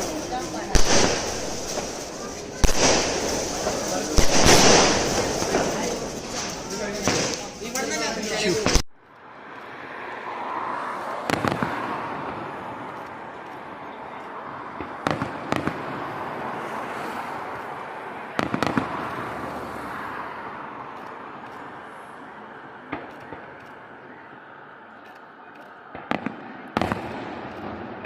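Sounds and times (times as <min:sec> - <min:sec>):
fireworks bangs: 0:00.0 - 0:09.0, 0:11.1 - 0:13.4, 0:14.0 - 0:20.2, 0:25.9 - 0:28.0.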